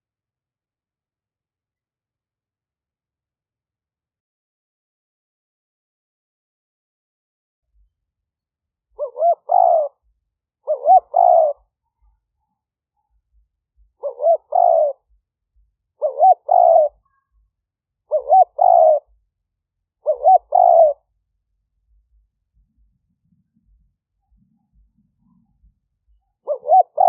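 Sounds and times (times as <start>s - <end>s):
dove cooing: 9.0s - 10.1s, 10.7s - 11.7s, 14.0s - 15.1s, 16.0s - 17.2s, 18.1s - 19.2s, 20.0s - 21.0s, 26.4s - 27.0s.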